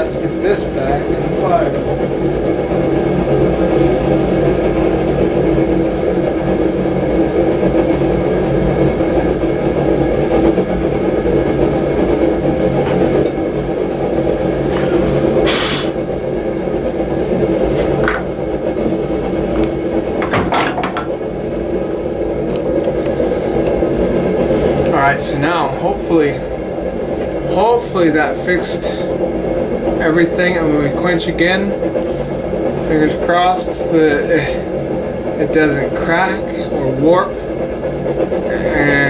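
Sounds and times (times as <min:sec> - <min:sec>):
forge roaring: 0:00.0 - 0:39.0
sharp knocks: 0:20.2 - 0:21.2.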